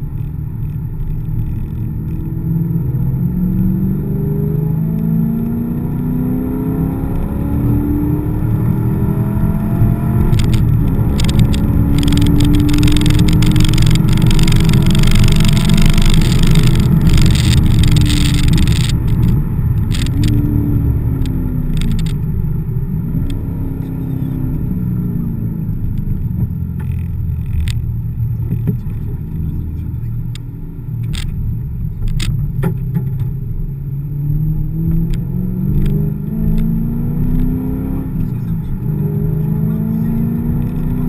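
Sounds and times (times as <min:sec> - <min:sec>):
sharp clicks and rattles: 0:00.0 - 0:02.3, 0:09.8 - 0:22.4, 0:25.7 - 0:33.4, 0:34.9 - 0:36.7
car engine revving in cabin: 0:00.0 - 0:41.0.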